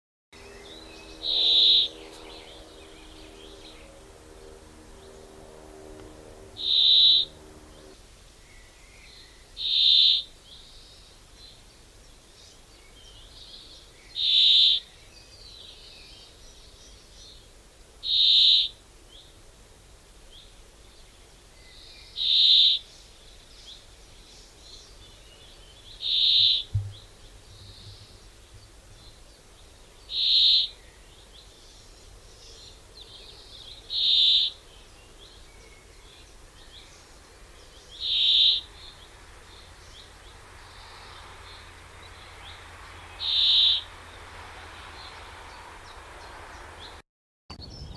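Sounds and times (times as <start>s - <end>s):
faint bird chirps: 0.5s - 3.9s, 21.1s - 44.2s
bird calling high note: 0.5s - 8.0s, 26.0s - 27.0s, 30.1s - 30.8s, 38.0s - 39.0s, 43.1s - 44.0s.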